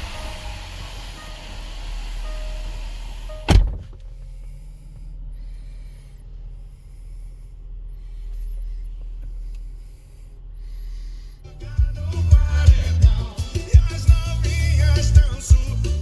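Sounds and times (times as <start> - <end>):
car engine idling hum: 0.0 - 16.0
outside noise: 0.0 - 16.0
car door slamming shut: 2.3 - 4.2.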